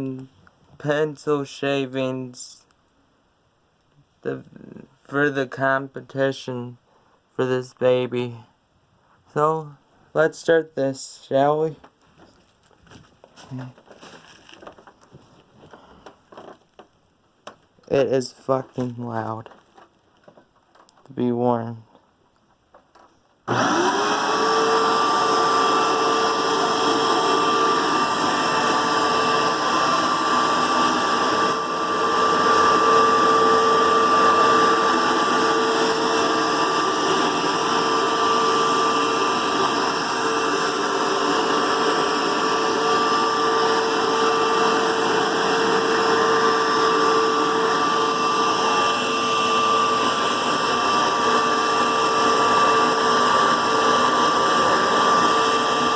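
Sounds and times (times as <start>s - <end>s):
vacuum cleaner whine: 23.5s - 55.9s.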